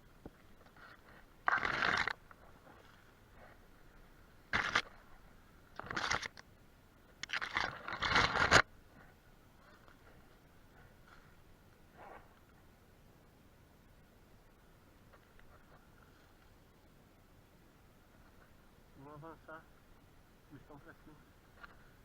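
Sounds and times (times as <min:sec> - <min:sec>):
rough scraping noise: 0:00.8 - 0:03.0.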